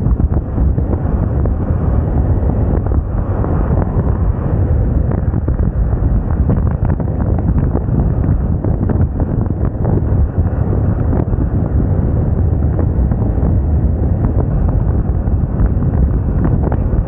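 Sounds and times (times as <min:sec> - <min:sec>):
road noise: 0:00.0 - 0:17.0
wind buffeting microphone: 0:00.0 - 0:17.0.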